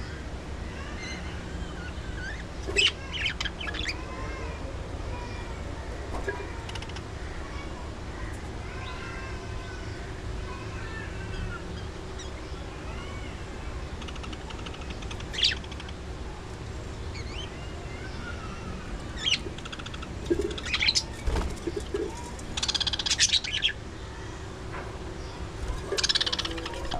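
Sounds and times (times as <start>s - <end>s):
steady low hum: 0.0s - 26.9s
budgerigars chirping and chattering: 1.0s - 4.1s, 13.9s - 16.0s, 19.2s - 23.8s, 25.2s - 26.9s.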